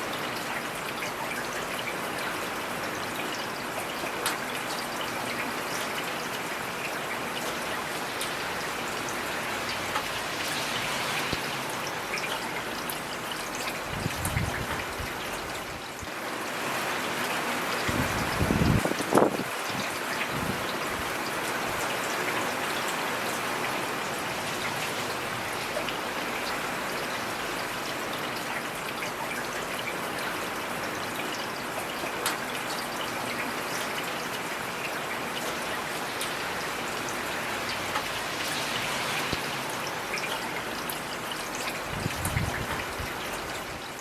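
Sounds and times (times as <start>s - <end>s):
heavy rain hissing: 8.0s - 13.1s, 36.0s - 44.0s.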